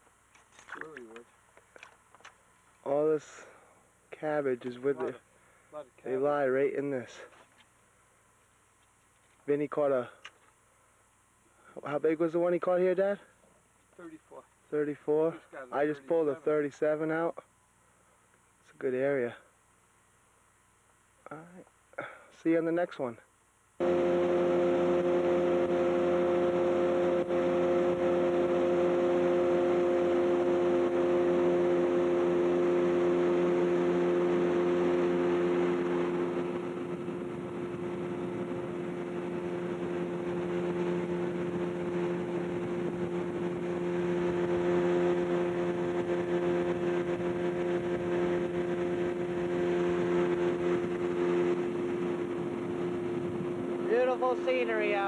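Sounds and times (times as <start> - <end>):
outboard motor running: 0.0 - 4.0, 23.8 - 55.0.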